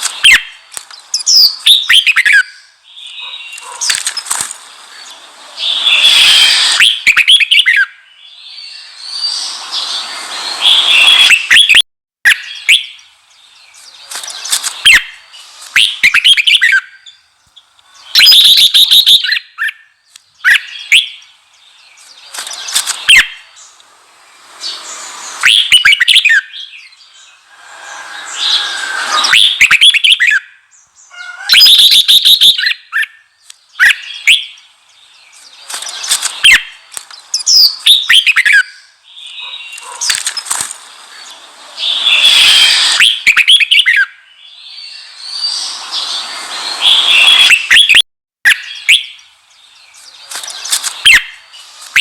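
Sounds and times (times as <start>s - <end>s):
bird singing short chirping phrases: 5.0s - 23.8s, 28.3s - 40.5s.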